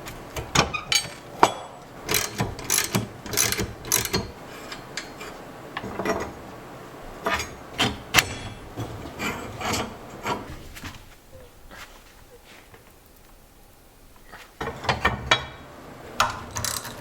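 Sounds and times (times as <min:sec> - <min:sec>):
hand tool scraping metal: 0:00.6 - 0:06.3, 0:07.2 - 0:10.7.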